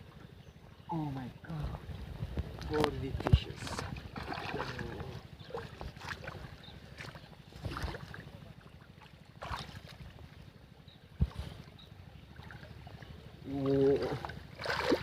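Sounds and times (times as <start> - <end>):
river water: 0.0 - 15.0
wind on microphone: 1.5 - 5.1
splashes: 3.6 - 10.1, 12.3 - 15.0.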